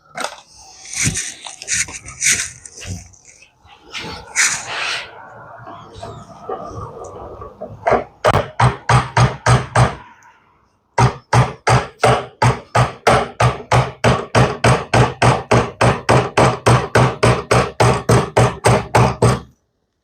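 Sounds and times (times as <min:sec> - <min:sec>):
hammer driving nails: 0:07.9 - 0:10.0, 0:11.0 - 0:19.5.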